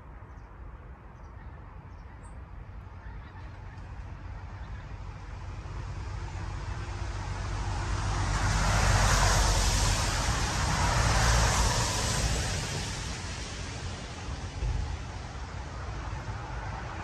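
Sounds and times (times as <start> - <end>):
wind rumble on microphone: 0.0 - 17.0
vehicle driving past: 5.0 - 17.0.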